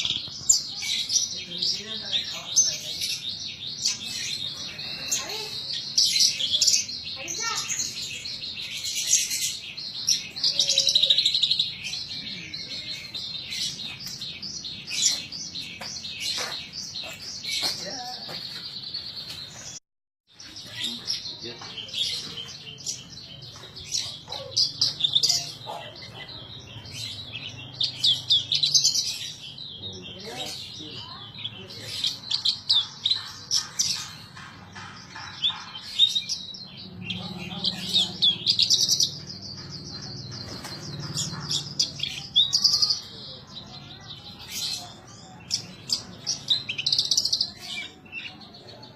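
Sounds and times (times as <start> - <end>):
lark singing chirps and trills: 20.4 - 48.9.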